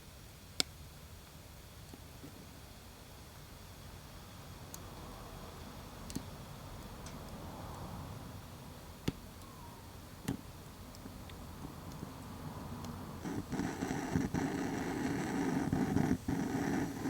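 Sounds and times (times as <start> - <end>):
wood fire burning: 8.3 - 17.0
fire crackling and popping: 10.2 - 17.0.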